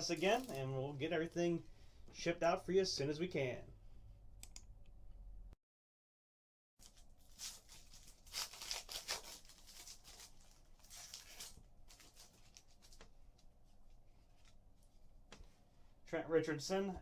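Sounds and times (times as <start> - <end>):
wrapper tearing and crinkling: 6.8 - 13.0.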